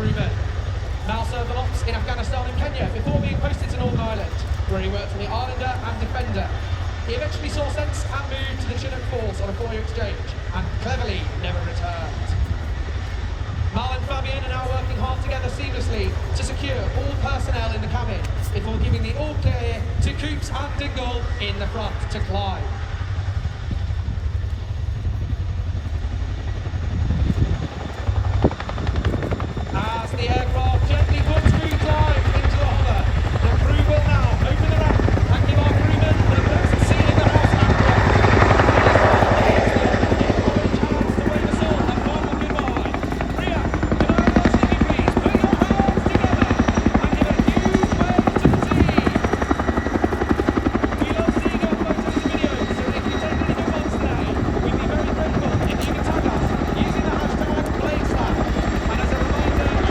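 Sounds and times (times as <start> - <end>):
helicopter engines running: 0.0 - 59.9
helicopter rotors thudding: 0.0 - 59.9.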